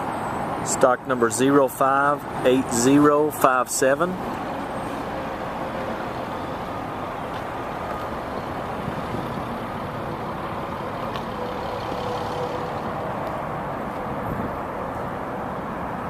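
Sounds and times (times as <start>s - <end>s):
low rumble of motor vehicle: 0.0s - 16.0s.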